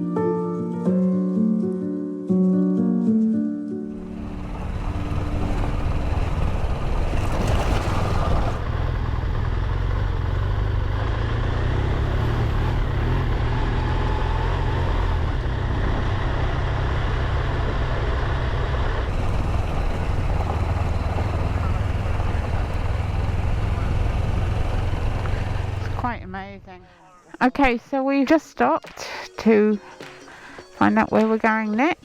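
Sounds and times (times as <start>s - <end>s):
motorcycle engine: 3.9s - 26.7s
road rumble: 3.9s - 26.9s.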